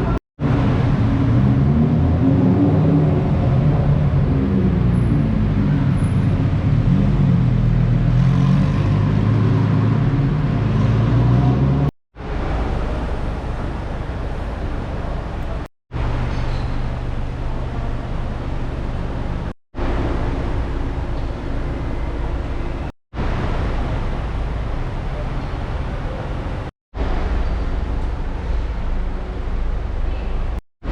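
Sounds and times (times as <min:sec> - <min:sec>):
car engines in street traffic: 0:00.0 - 0:30.9.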